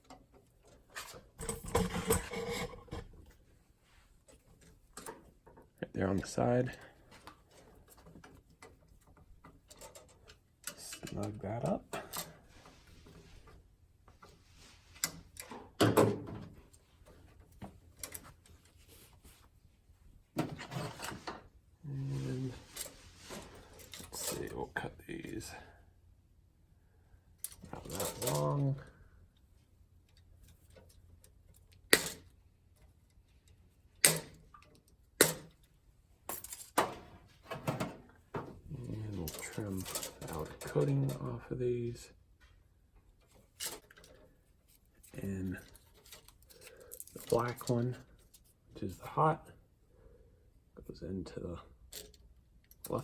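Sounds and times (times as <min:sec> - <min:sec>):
clicks and rattles of handling: 0:00.0 - 0:03.4, 0:04.2 - 0:05.8, 0:06.7 - 0:14.4, 0:15.0 - 0:19.4, 0:22.4 - 0:25.5, 0:27.4 - 0:41.4, 0:42.4 - 0:49.0, 0:51.7 - 0:53.0.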